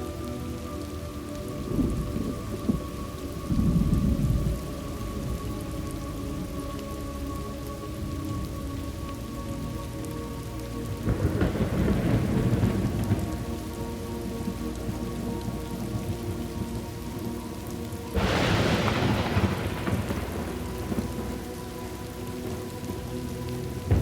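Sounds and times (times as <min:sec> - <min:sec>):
steady rain: 0:00.0 - 0:24.0
thunder rumbling: 0:01.4 - 0:09.7, 0:10.8 - 0:24.0
thunder clap: 0:11.1 - 0:13.6, 0:18.2 - 0:21.6.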